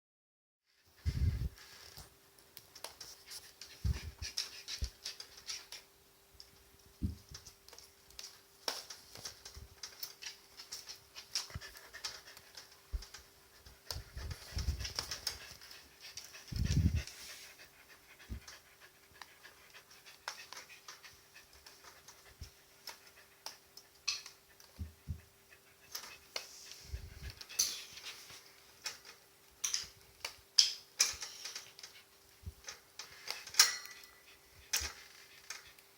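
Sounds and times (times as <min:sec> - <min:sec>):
small clicks and taps: 0:02.0 - 0:16.4
dog panting: 0:10.7 - 0:28.1.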